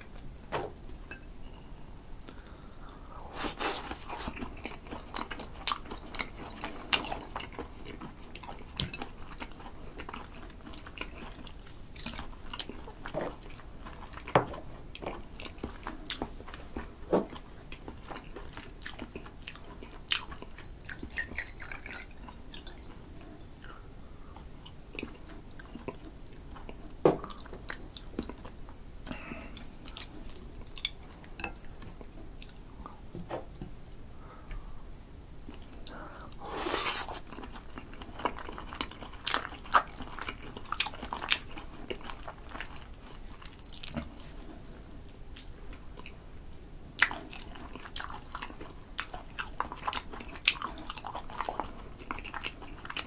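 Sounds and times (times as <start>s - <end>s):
wet chewing: 2.2s - 14.3s.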